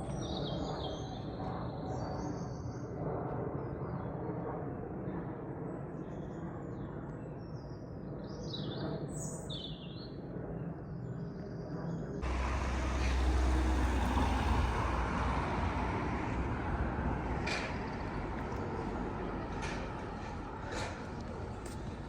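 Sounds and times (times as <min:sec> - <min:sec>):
street background noise: 0:12.2 - 0:22.0.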